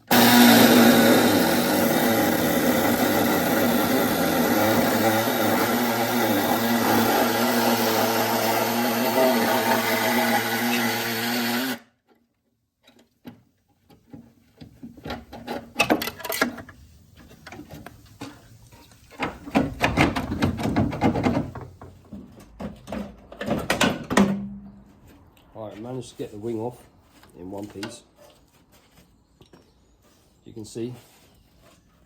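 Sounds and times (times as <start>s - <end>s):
power tool running: 0.0s - 11.9s
metal knocks rattles and scraping: 12.9s - 24.8s.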